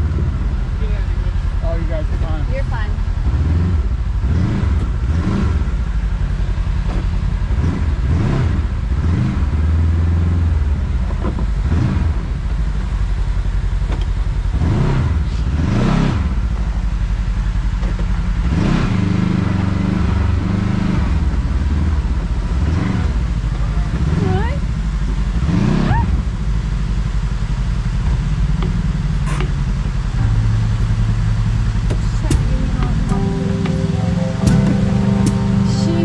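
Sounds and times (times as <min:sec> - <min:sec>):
engine revving under load: 0:00.0 - 0:13.0, 0:13.8 - 0:36.0.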